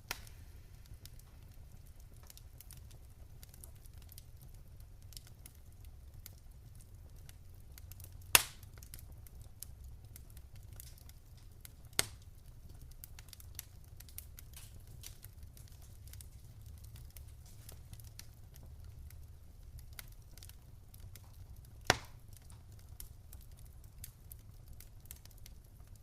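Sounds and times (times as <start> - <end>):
loud sharp fire pops: 0.0 - 1.6, 8.0 - 9.1, 10.2 - 12.2, 19.9 - 23.0
wood fire crackling: 0.0 - 26.0.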